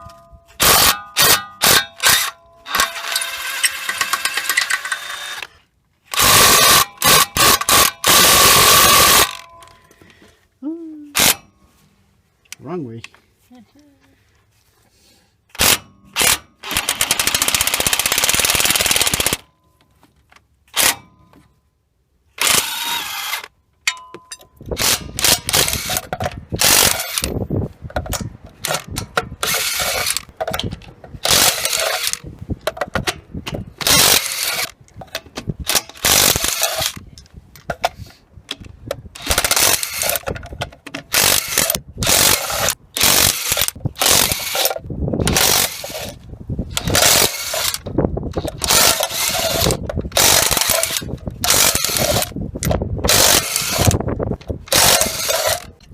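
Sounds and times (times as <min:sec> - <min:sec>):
impact wrench hammering: 0:00.0 - 0:05.1.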